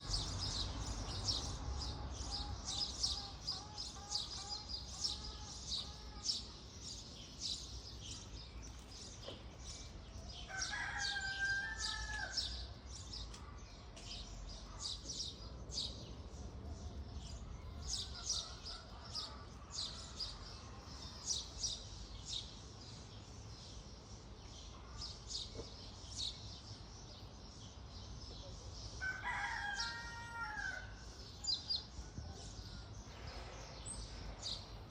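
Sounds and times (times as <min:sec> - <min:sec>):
small birds chirping: 0:00.0 - 0:34.9
rooster crowing: 0:10.5 - 0:12.4, 0:29.0 - 0:31.0.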